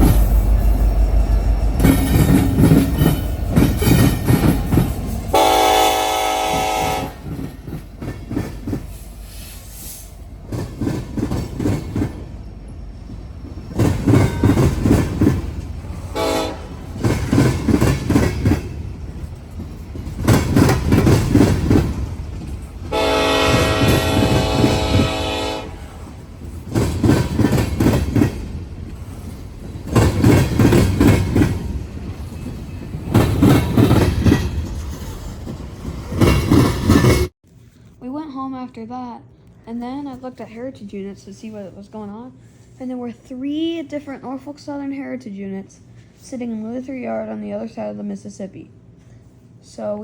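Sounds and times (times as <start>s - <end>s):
train wheels clattering: 0.0s - 37.3s
train air horn blasts: 5.3s - 7.4s, 15.9s - 17.0s, 22.9s - 26.2s.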